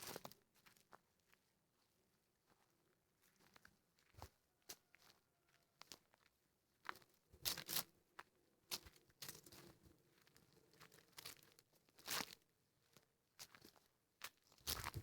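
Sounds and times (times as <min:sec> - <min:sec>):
footsteps crunching dry leaves: 0:07.4 - 0:07.9, 0:14.6 - 0:15.0.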